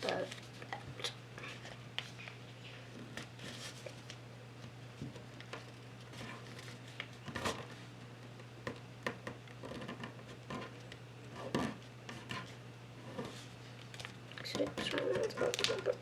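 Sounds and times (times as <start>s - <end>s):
paper folding and rustling: 0.0s - 2.4s, 3.1s - 4.2s, 13.2s - 16.0s
steady low hum: 0.0s - 16.0s.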